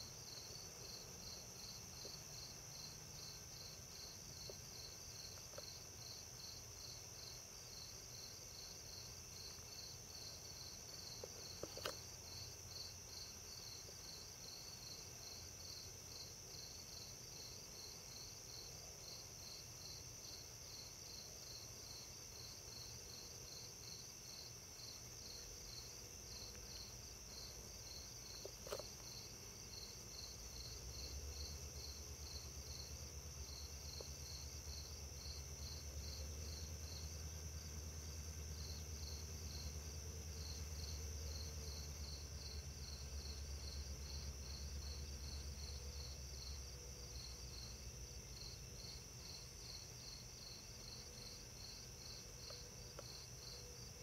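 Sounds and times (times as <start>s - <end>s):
insects chirping: 0.0s - 54.0s.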